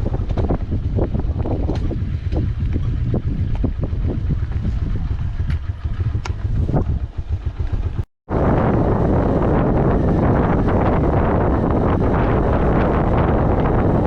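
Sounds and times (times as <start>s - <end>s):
motorcycle engine rumble: 0.0s - 14.0s
wind buffeting microphone: 0.0s - 14.0s.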